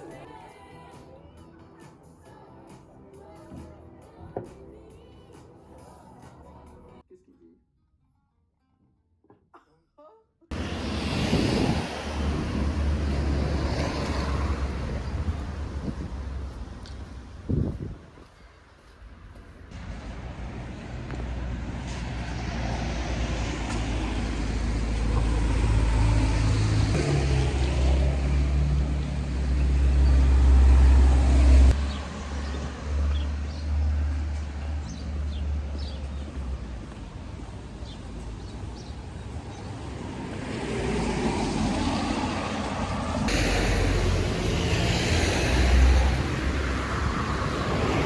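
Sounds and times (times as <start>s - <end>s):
traffic noise: 10.5s - 48.0s
vehicle engine rumbling: 10.5s - 48.0s.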